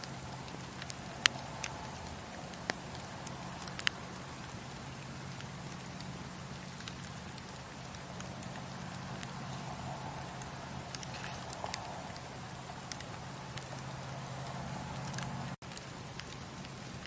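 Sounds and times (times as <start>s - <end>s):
campfire burning: 0.0s - 17.0s
fire crackles and pops: 0.0s - 17.0s.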